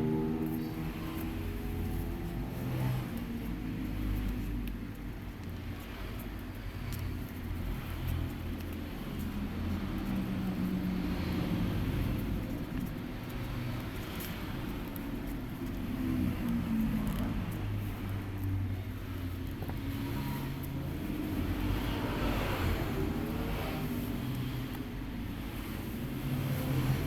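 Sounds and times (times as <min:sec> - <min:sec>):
low steady rumble: 0:00.0 - 0:27.0
faint ticks: 0:02.7 - 0:22.6.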